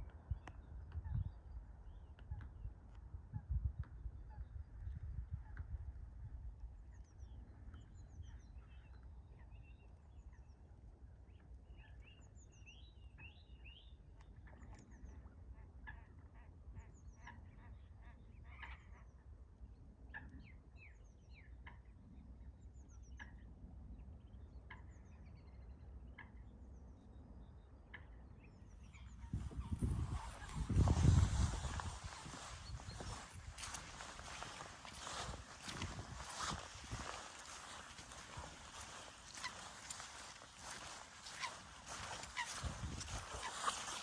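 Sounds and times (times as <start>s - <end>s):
small birds chirping: 28.8s - 44.0s
waterfowl calling: 29.2s - 44.0s.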